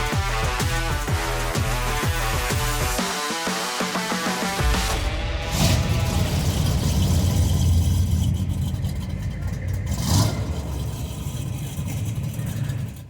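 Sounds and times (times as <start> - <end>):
car engine low rumble: 4.9 - 13.0.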